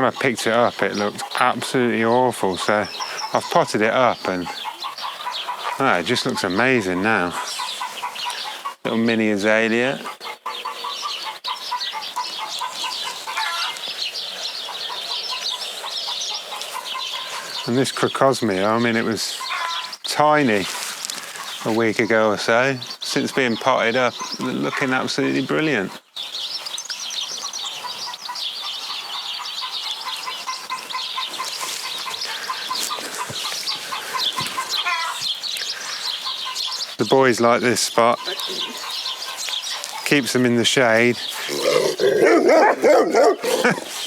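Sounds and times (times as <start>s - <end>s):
birds chirping quickly: 0.0s - 44.0s
lower repeated bird notes: 21.4s - 44.0s.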